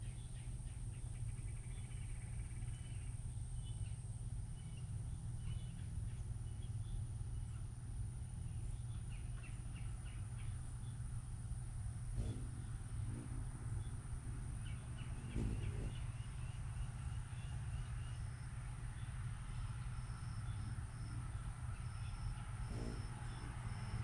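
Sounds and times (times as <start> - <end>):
small birds chirping: 0.0 - 24.0
steady low rumble: 0.0 - 24.0
rattling bird trill: 11.9 - 18.4, 19.2 - 24.0.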